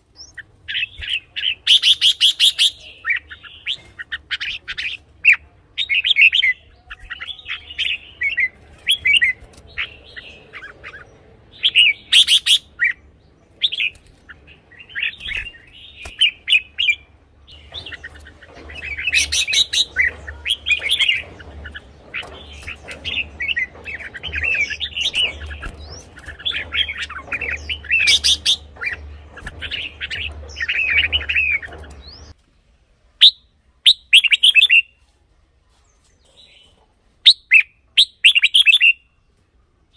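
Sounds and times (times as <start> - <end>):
birds singing warbled phrases: 0.0 - 32.4, 33.2 - 35.0, 36.2 - 39.2.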